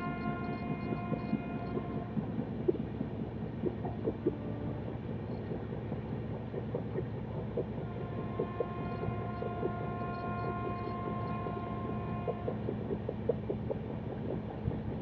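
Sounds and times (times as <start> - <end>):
faint steady tone: 0.0 - 14.9
train rumbling: 0.0 - 15.0.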